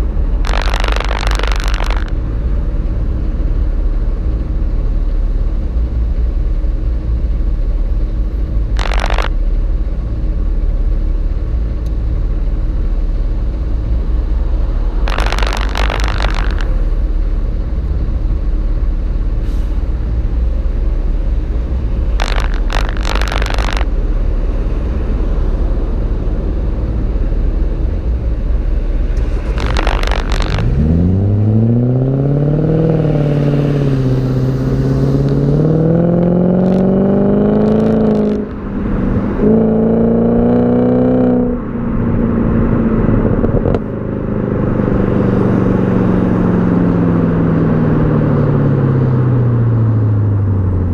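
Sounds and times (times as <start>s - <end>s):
gear changes: 0.0s - 3.9s, 8.0s - 9.6s, 13.6s - 17.4s, 19.7s - 39.8s
car engine exhaust rumble: 0.0s - 50.9s
engine accelerating: 0.0s - 50.9s.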